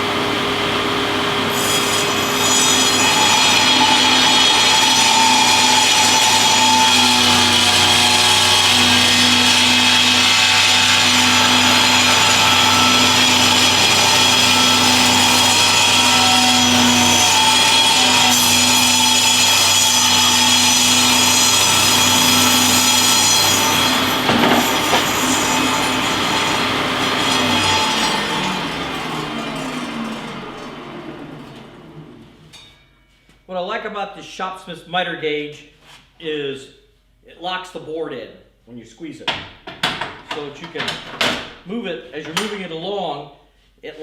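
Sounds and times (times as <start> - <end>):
table saw cutting board: 0.0 - 32.6
knocks: 24.2 - 25.2.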